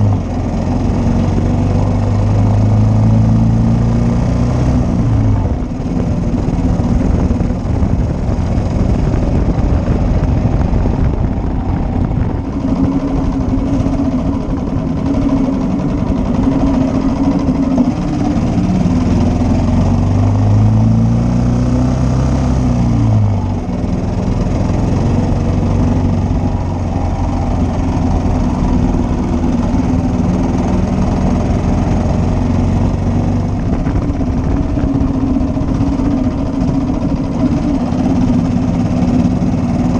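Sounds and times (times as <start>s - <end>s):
single-cylinder motorcycle engine running: 0.0s - 39.9s.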